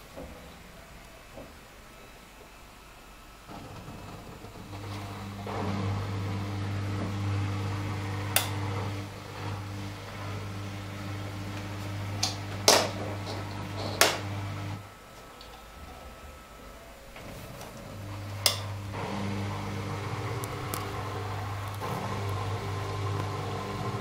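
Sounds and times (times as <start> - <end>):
washing machine humming: 0.0 - 24.0.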